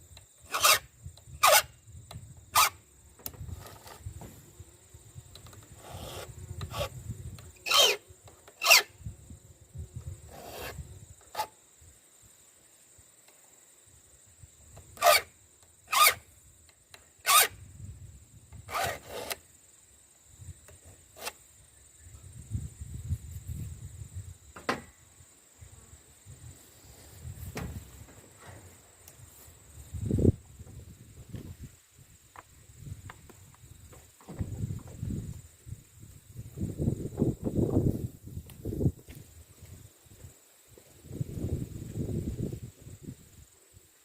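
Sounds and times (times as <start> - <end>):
file rasping on chainsaw chain: 0.5 - 0.8, 1.4 - 1.7, 2.6 - 2.8, 5.8 - 6.9, 7.6 - 8.0, 8.6 - 8.9, 10.3 - 11.5, 15.0 - 15.3, 15.9 - 16.2, 17.2 - 17.5, 18.7 - 19.4.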